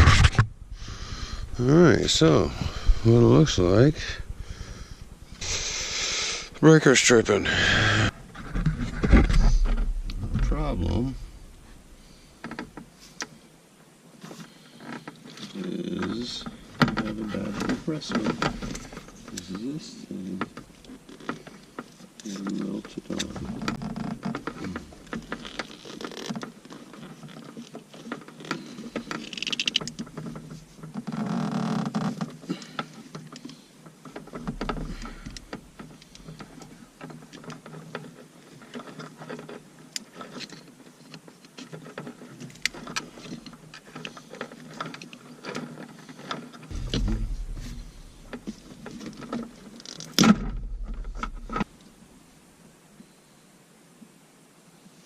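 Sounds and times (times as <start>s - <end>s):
brief low rumbles: 0.0s - 6.7s, 7.5s - 12.2s, 46.7s - 48.9s.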